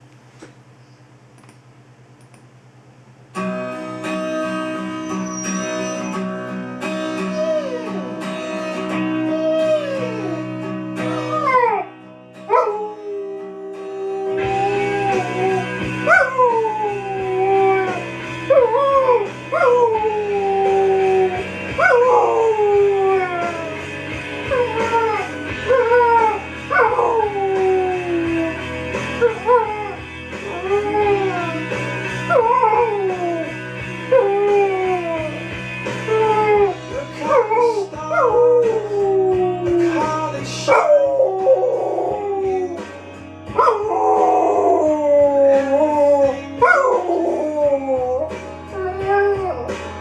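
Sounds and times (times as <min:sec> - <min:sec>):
guitar-led song: 0:03.4 - 0:50.0
dog howling: 0:05.0 - 0:06.3, 0:07.1 - 0:11.9, 0:12.5 - 0:23.8, 0:24.4 - 0:42.9, 0:43.6 - 0:49.7.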